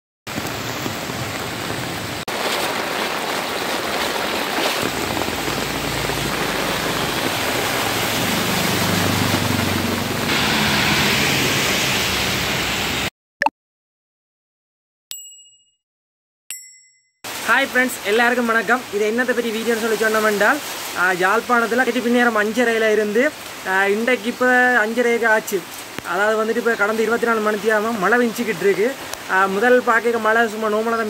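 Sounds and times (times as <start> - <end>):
wheels splashing through water: 0.3 - 12.9
rushing floodwater: 0.3 - 13.0, 17.3 - 31.0
heavy rain: 0.3 - 13.1, 17.3 - 31.0
auto-rickshaw engine: 5.6 - 12.9
ringing ding chime: 15.1 - 15.8, 16.5 - 17.2.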